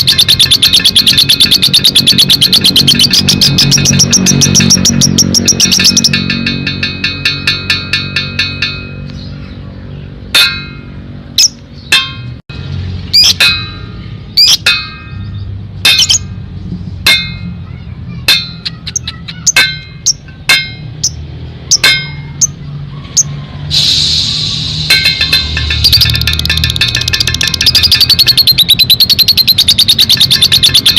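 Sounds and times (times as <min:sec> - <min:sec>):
bird chirping shrilly: 0:00.0 - 0:06.3, 0:13.1 - 0:13.4, 0:14.0 - 0:16.3, 0:17.6 - 0:20.3, 0:21.0 - 0:30.9.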